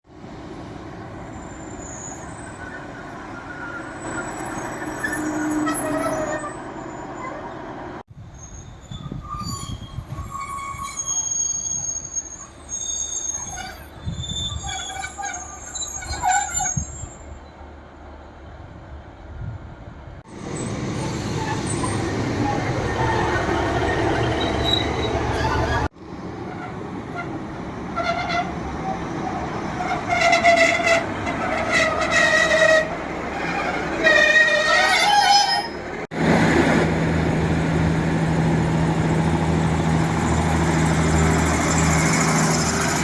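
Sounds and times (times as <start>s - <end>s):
diesel train rumble: 0.1s - 43.0s
brake and wheel squeals: 1.2s - 17.7s, 20.3s - 36.1s, 39.6s - 43.0s.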